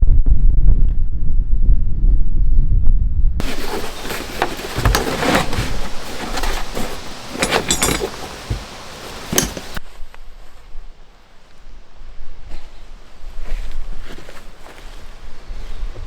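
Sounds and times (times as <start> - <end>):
handling knocks and clinks: 3.4 - 9.8.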